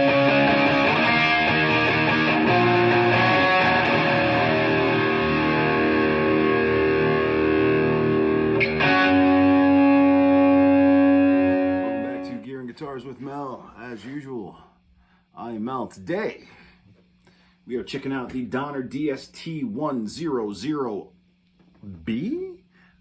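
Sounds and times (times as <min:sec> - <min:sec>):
distorted electric guitar chords: 0:00.0 - 0:12.4.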